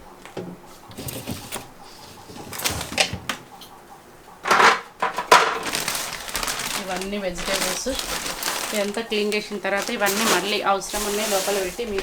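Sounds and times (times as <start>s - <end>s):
rustling: 0.6s - 3.6s, 4.4s - 12.0s.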